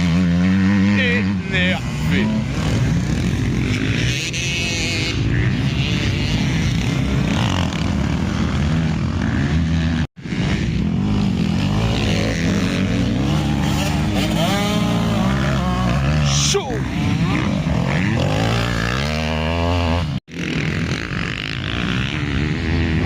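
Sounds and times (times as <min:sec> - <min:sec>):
motocross bikes revving: 0:00.0 - 0:23.0.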